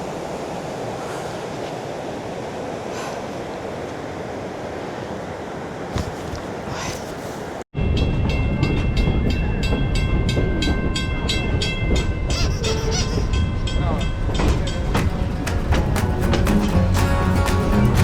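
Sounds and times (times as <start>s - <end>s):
train rumbling on rails: 0.0s - 18.0s
train wheels clicking on rail joints: 14.0s - 17.9s.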